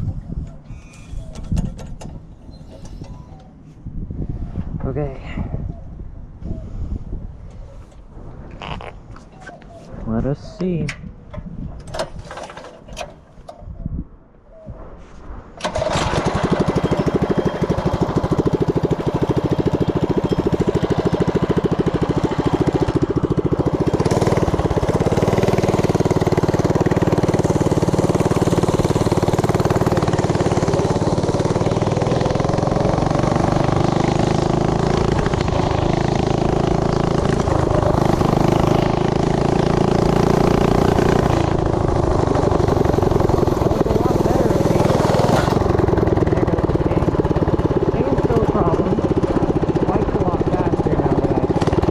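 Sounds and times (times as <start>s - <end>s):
small engine running: 15.6s - 51.9s.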